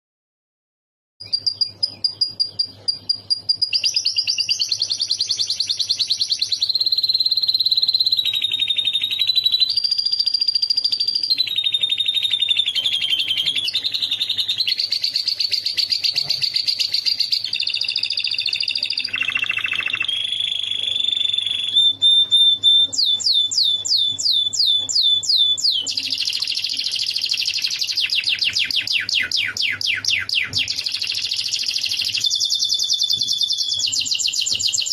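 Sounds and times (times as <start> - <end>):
canary singing rapid trills: 1.2 - 34.9.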